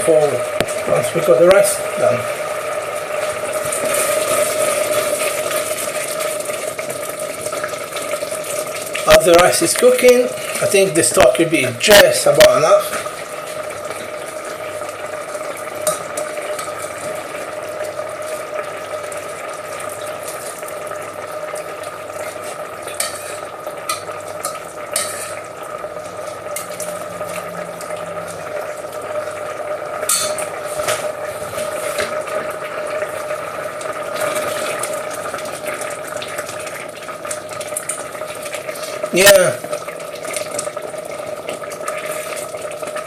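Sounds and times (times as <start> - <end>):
risotto simmering in a pan: 0.0 - 43.0
utensil scraping a pan: 22.8 - 25.5.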